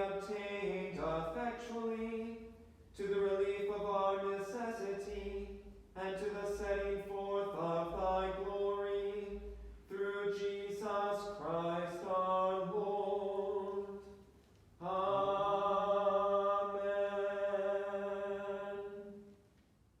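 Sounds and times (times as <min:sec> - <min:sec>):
man chanting a prayer: 0:00.0 - 0:02.4, 0:03.0 - 0:13.8.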